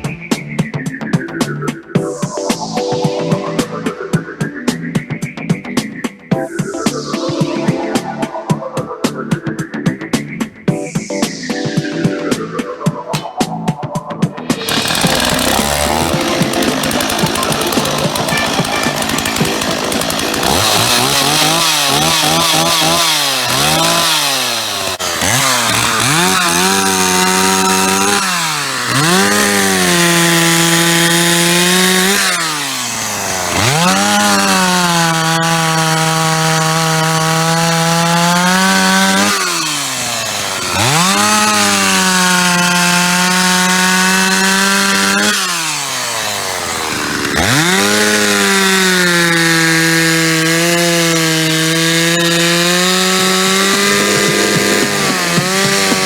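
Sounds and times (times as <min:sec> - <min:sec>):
chainsaw revving through logs: 0:14.5 - 0:56.0.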